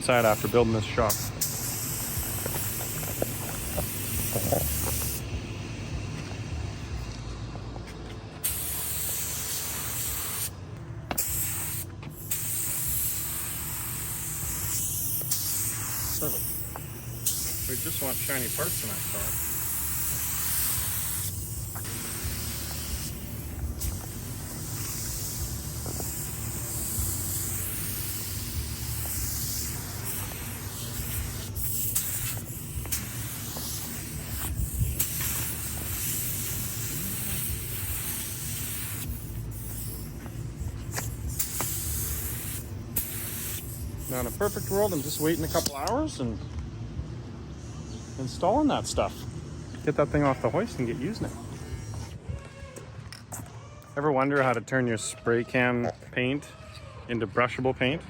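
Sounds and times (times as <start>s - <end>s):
paint spray hiss: 0.0s - 5.3s, 8.4s - 46.0s.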